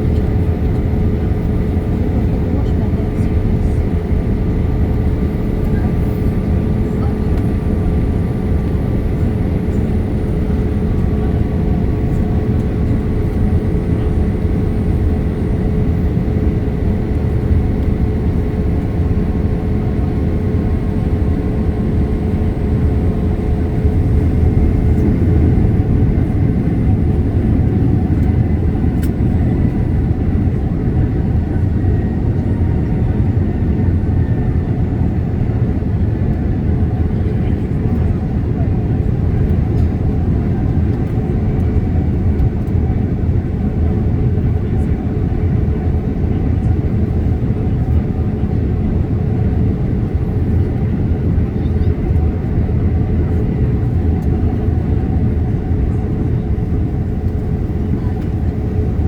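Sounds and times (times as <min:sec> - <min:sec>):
airflow rush and engine drone: 0:00.0 - 0:59.0.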